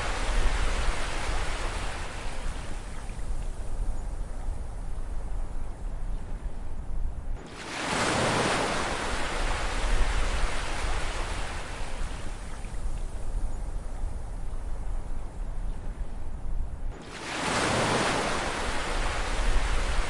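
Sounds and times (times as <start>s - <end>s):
low rumble of surf: 0.0s - 20.0s
wave breaking in rushing wash: 17.0s - 20.0s.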